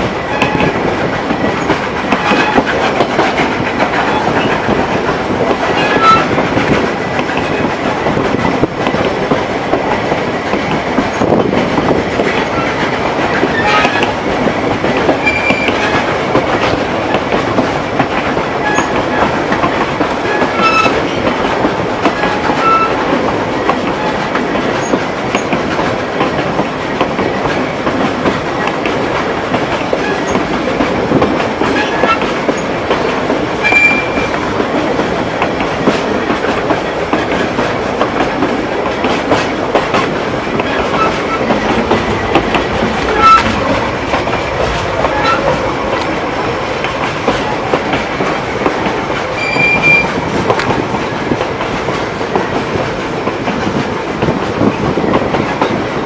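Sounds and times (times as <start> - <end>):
rail joint clicks: 0.0 - 56.0
wheels rumbling on rail: 0.0 - 56.0
high wheel squeaks: 5.7 - 6.4, 15.2 - 16.1, 18.6 - 19.4, 20.2 - 21.2, 22.2 - 23.1, 33.6 - 34.4, 40.6 - 46.0, 49.4 - 50.2.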